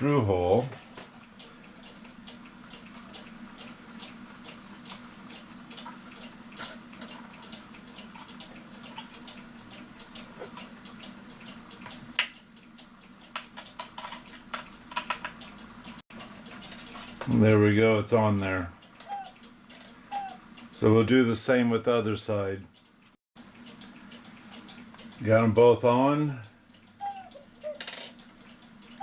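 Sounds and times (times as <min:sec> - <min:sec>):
light clock ticks: 0:00.0 - 0:29.0
small clicks and scratches: 0:01.0 - 0:12.4, 0:13.1 - 0:17.4.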